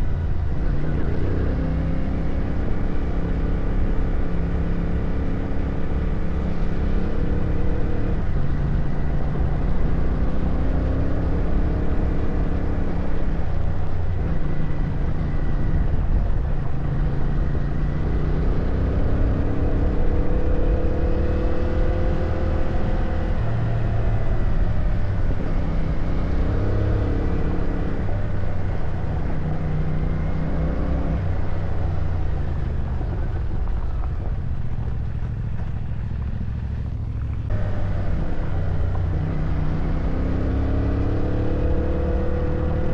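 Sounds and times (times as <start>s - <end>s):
motorcycle engine running: 11.3s - 42.9s.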